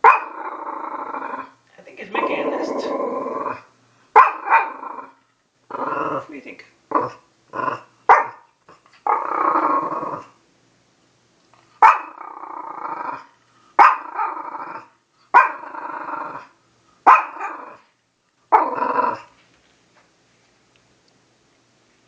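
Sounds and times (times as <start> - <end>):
dog growling barks: 0.0 - 6.3, 6.9 - 10.4, 11.8 - 17.9, 18.5 - 19.3.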